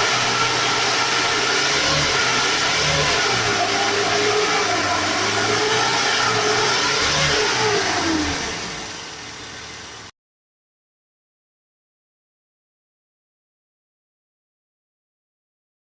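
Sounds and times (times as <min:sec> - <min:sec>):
car engine revving: 0:00.0 - 0:10.1.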